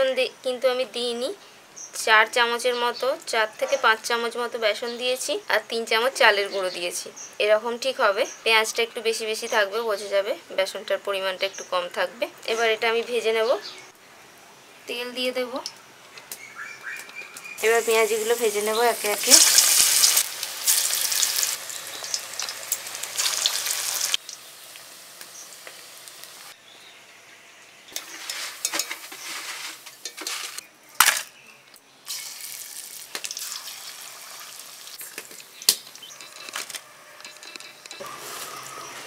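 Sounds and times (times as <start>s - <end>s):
food sizzling in hot oil: 17.6s - 26.6s, 27.9s - 30.6s, 32.1s - 35.7s.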